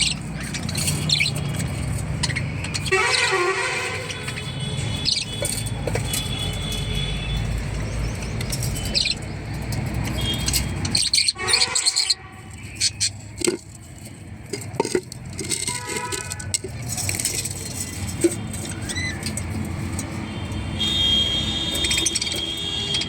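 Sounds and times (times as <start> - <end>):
budgerigars chirping: 0.0 - 3.4, 4.0 - 6.7, 7.4 - 13.2.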